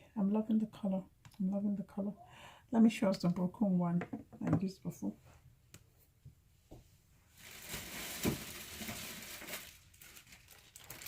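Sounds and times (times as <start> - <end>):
crinkly material rustling: 7.3 - 11.0.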